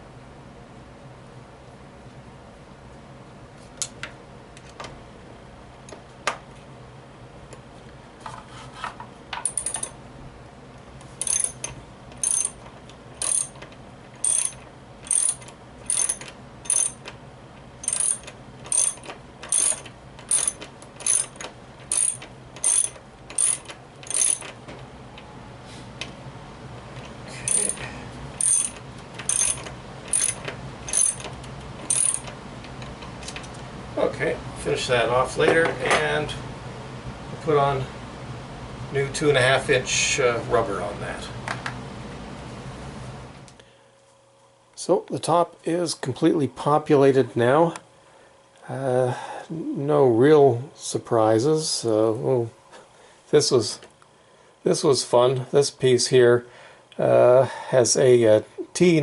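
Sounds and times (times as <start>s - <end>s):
ratchet tool clicking: 11.2s - 12.6s, 13.2s - 13.6s, 14.2s - 17.1s, 17.8s - 24.5s, 28.4s - 31.3s, 31.9s - 32.3s.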